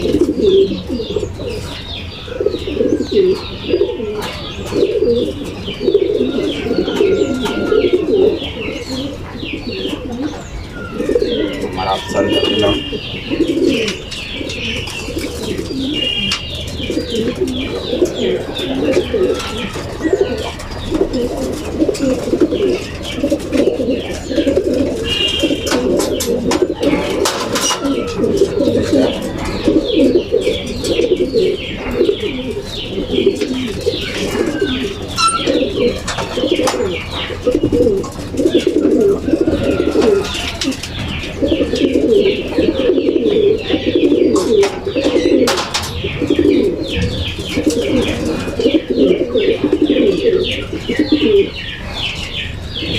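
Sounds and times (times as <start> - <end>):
pigeons cooing: 0.0 - 52.9.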